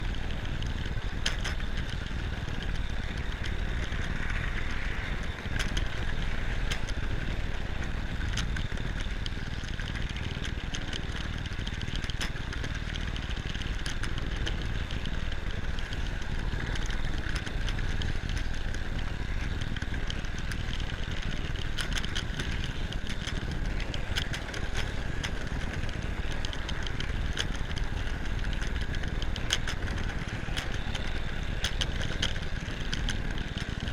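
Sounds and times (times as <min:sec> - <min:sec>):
model train motor hum: 0:00.0 - 0:33.9
sharp clicks of train: 0:00.0 - 0:33.9
wheels rumbling on rail: 0:00.0 - 0:33.9.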